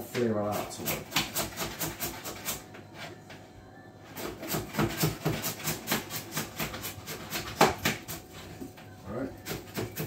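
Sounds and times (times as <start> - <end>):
knife chopping on cutting board: 0.5 - 2.6, 4.2 - 8.2, 9.4 - 10.0.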